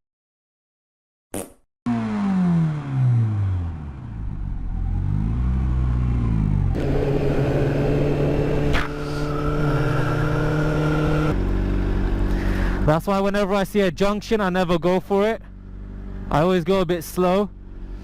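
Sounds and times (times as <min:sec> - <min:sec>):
motorcycle engine: 0:01.9 - 0:12.9, 0:15.4 - 0:18.0
road noise: 0:01.9 - 0:18.0.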